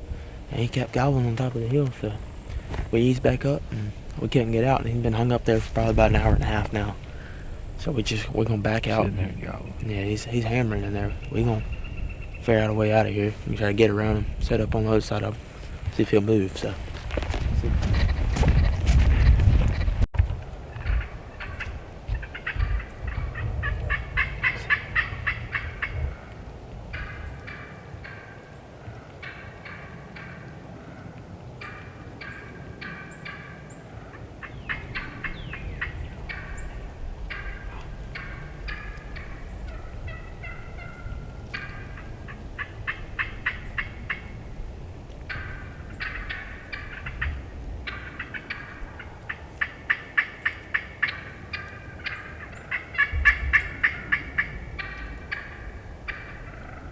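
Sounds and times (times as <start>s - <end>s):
turkey gobbling: 0.6s - 14.2s, 20.7s - 44.5s, 45.2s - 56.9s.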